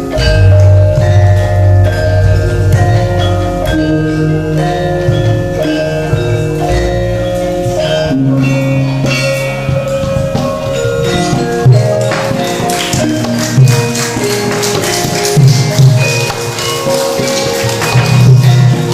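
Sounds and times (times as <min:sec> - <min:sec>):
deep long-held low notes: 0:00.0 - 0:12.0
ringing metallophone notes: 0:00.0 - 0:18.9.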